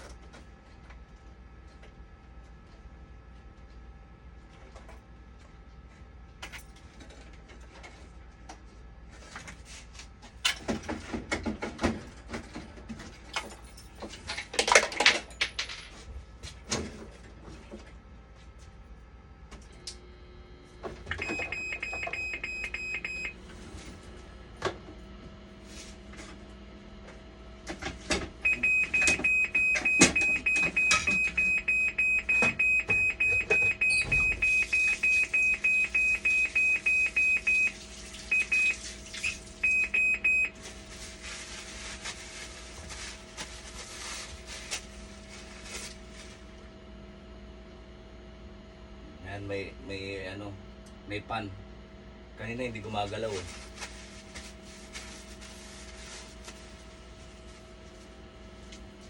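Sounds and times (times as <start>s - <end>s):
high electronic beep: 21.2s - 23.3s
fast alarm beeping: 21.2s - 23.4s, 28.4s - 40.5s.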